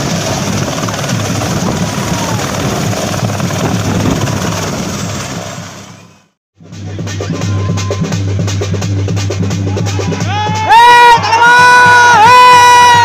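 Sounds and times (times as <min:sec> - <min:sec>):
helicopter rotor and engine: 0:00.0 - 0:06.4.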